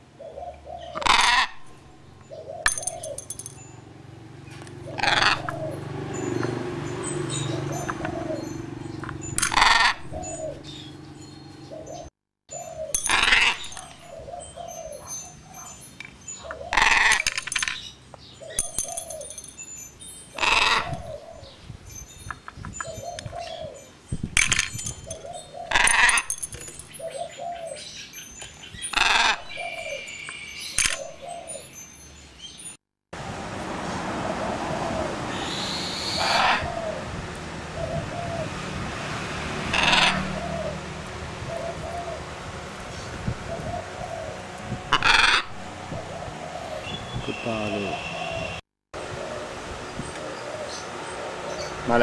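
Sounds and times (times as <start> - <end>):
parrot screeching: 1.0 - 1.7, 4.9 - 5.6, 9.5 - 10.1, 13.1 - 14.0, 16.7 - 17.3, 20.4 - 21.0, 25.7 - 26.3, 28.9 - 29.5, 35.4 - 36.8, 39.7 - 40.4, 44.9 - 45.6.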